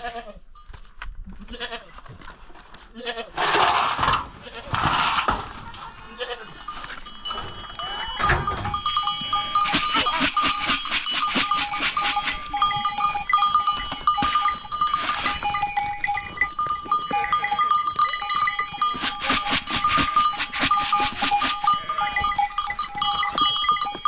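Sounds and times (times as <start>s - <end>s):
goats and sheep bleating: 0.0s - 0.5s, 1.2s - 2.1s, 2.8s - 11.4s, 12.0s - 24.0s
animal bells jingling: 5.8s - 24.0s.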